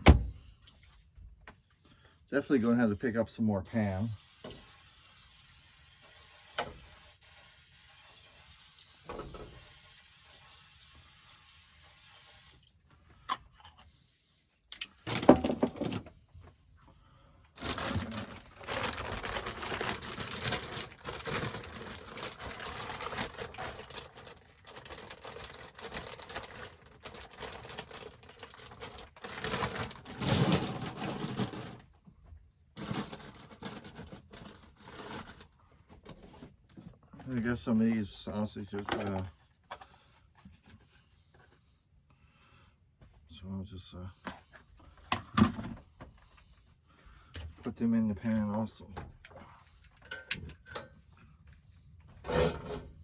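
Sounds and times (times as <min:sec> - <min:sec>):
camp stove hissing: 0:03.7 - 0:12.6
crackling and rustling: 0:17.6 - 0:32.0.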